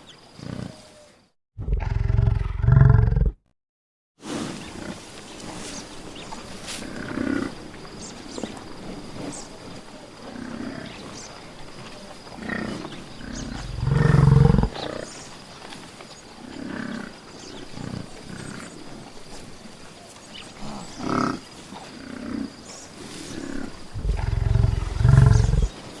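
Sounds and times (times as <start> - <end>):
buffalo bellowing and grunting: 1.6 - 3.4, 12.4 - 15.0, 23.3 - 25.7.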